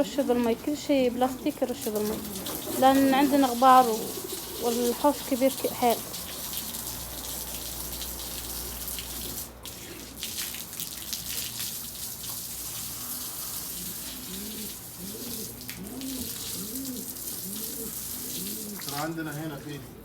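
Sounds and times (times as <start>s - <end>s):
pigeons cooing: 0.0s - 7.3s, 12.8s - 20.0s
water spraying from a hose: 0.0s - 20.0s.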